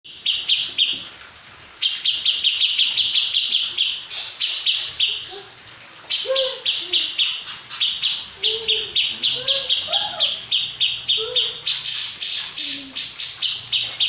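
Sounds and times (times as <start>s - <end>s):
sharp harsh bird sounds: 1.9s - 5.4s, 6.1s - 14.0s
bird calling high notes: 6.1s - 14.0s.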